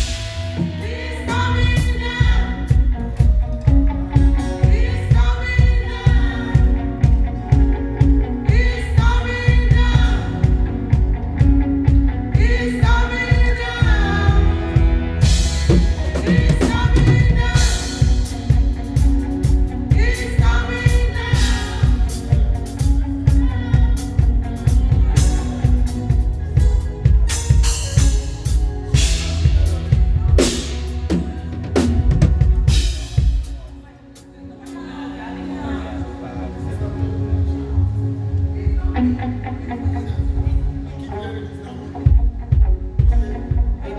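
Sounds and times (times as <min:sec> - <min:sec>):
people singing: 0:00.0 - 0:10.9, 0:12.2 - 0:33.3
drum kit beat: 0:00.0 - 0:33.8
bass guitar: 0:00.0 - 0:33.9, 0:36.0 - 0:43.9.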